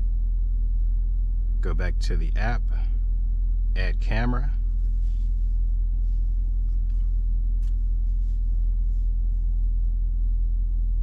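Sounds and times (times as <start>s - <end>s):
car engine idling: 3.8s - 9.7s.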